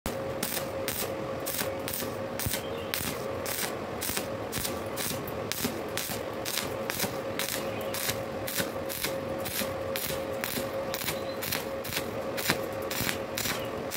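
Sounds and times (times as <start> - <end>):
faint steady hum: 0.1 - 13.9
welding arc crackling and sizzling: 0.1 - 13.9.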